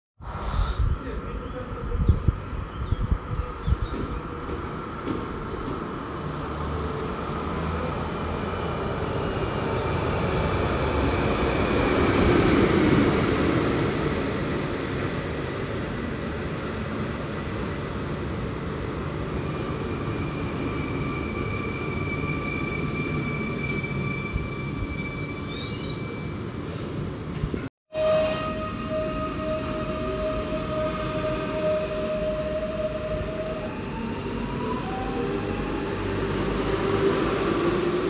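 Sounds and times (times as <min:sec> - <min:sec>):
high-pitched squeal: 0:19.0 - 0:27.0, 0:28.0 - 0:38.0.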